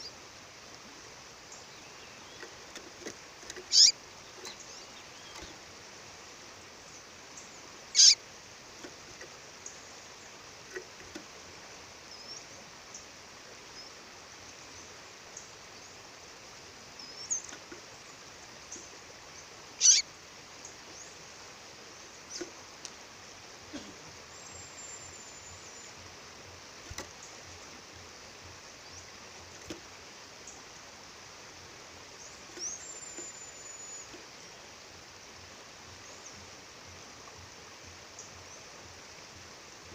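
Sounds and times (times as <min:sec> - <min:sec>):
bird chirping: 0:01.5 - 0:05.7, 0:06.8 - 0:08.2, 0:17.0 - 0:20.0, 0:32.1 - 0:34.6.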